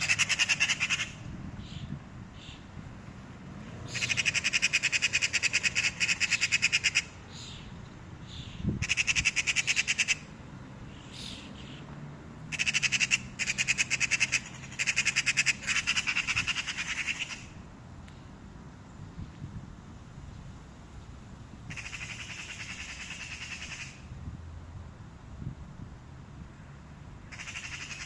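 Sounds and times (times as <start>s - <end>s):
magpie rattling chatter: 0.0s - 1.2s, 3.9s - 7.2s, 8.8s - 10.3s, 12.5s - 17.5s, 21.7s - 24.0s, 27.3s - 28.0s.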